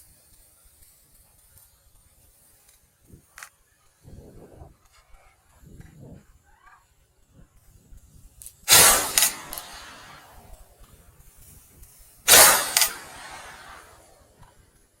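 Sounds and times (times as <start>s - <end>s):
shotgun shots: 8.7s - 10.7s, 12.3s - 14.1s
faint echo crack: 8.7s - 10.8s, 12.3s - 14.2s.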